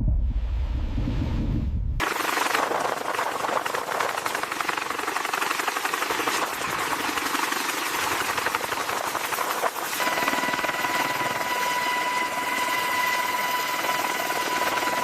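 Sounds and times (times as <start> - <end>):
low rumble: 0.0 - 2.0
fast-rattling mechanical noise: 2.0 - 15.0.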